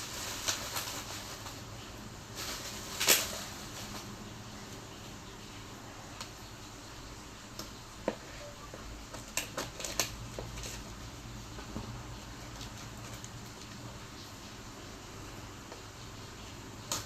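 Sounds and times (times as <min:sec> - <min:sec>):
packaging crinkling and tapping: 0:07.6 - 0:10.9.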